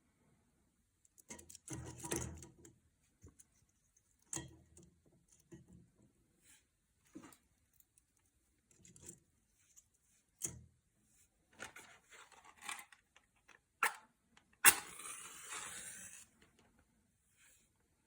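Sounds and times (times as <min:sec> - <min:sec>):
match struck flaring with hiss: 0:14.6 - 0:16.4.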